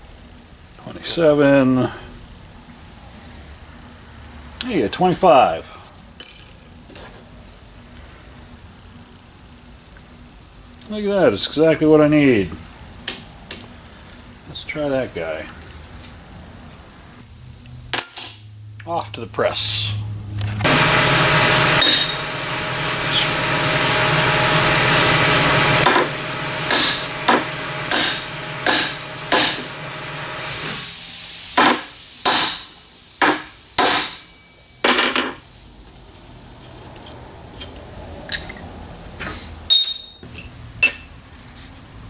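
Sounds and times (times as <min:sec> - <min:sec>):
metal parts clinking: 0:06.2 - 0:06.8, 0:39.7 - 0:41.1
machine running: 0:20.1 - 0:35.6
hammer blows on metal: 0:20.6 - 0:22.3, 0:25.6 - 0:30.0, 0:31.5 - 0:35.4.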